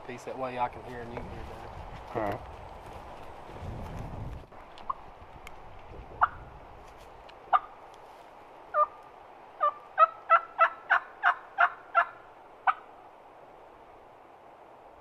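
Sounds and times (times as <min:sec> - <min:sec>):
turkey yelps on mouth call: 0:09.6 - 0:12.8.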